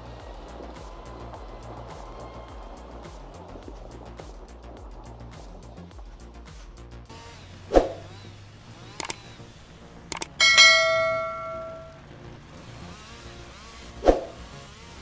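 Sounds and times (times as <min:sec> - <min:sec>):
sharp clicks: 0:08.8 - 0:09.4, 0:10.1 - 0:11.8
loud metallic ring: 0:10.4 - 0:12.0.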